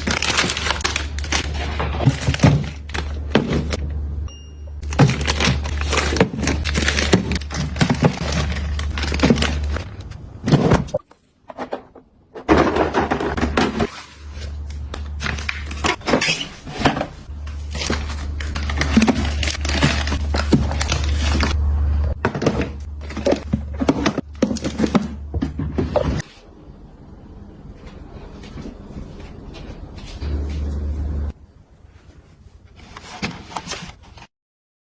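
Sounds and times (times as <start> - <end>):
household items knocking and clattering: 0.0 - 3.8, 4.8 - 14.1, 15.2 - 21.6, 22.2 - 26.4
steady low hum: 12.9 - 32.4.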